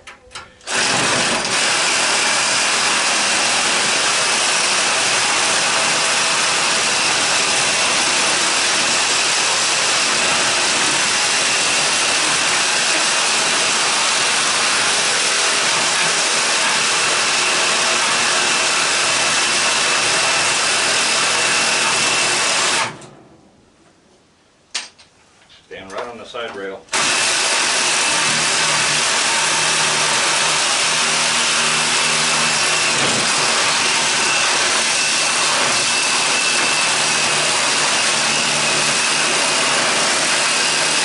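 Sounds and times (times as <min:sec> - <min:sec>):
power tool cutting metal: 0:00.6 - 0:23.0, 0:26.9 - 0:41.0.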